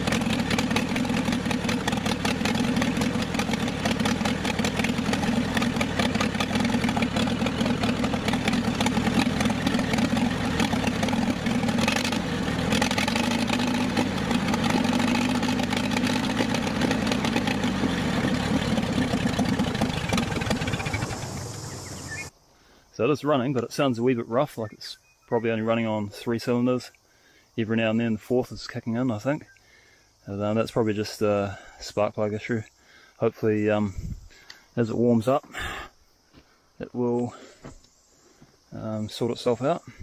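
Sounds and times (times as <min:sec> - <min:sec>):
tractor engine idling roughly: 0:00.0 - 0:22.3.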